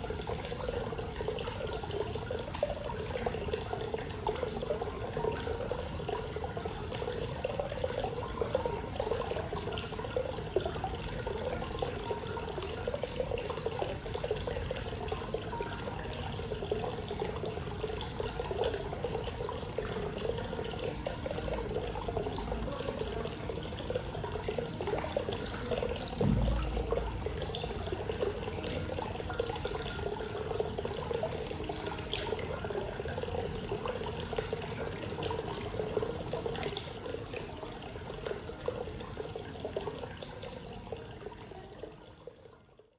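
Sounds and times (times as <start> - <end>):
water pouring into bath: 0.0 - 42.9
low thump: 26.1 - 28.1.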